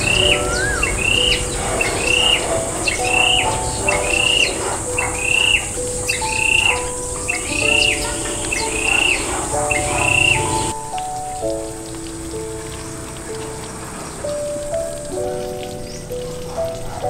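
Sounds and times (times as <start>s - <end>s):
high insect buzz: 0.0s - 10.8s
bird calling: 0.0s - 12.0s
soft background music: 0.0s - 17.0s.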